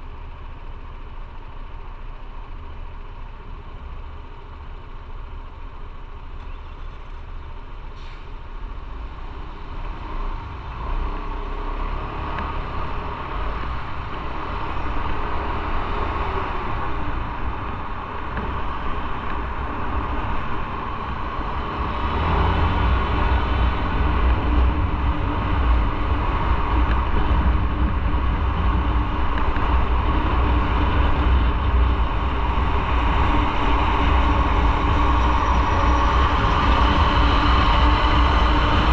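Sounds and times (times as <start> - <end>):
road and wind noise: 0.0 - 38.9
motorcycle engine running: 12.7 - 38.9.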